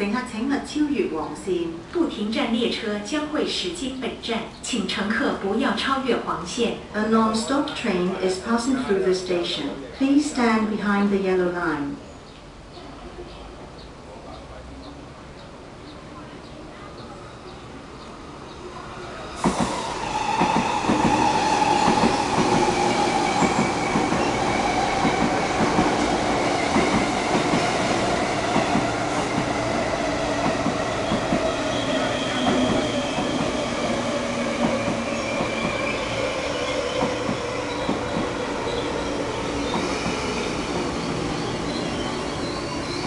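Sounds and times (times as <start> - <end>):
train wheels rumbling on rail: 14.9 - 43.0
falling train whine: 18.7 - 43.0.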